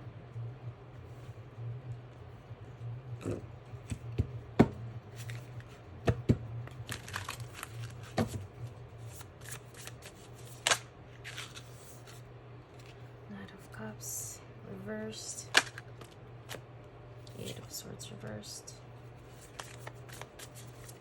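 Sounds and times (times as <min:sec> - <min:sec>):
low steady hum: 0:00.0 - 0:21.0
cards rustling flicks: 0:06.8 - 0:08.4, 0:09.0 - 0:12.2, 0:15.5 - 0:16.6, 0:19.3 - 0:21.0
cards snapping and tapping: 0:09.4 - 0:11.6, 0:15.6 - 0:16.6, 0:19.4 - 0:21.0.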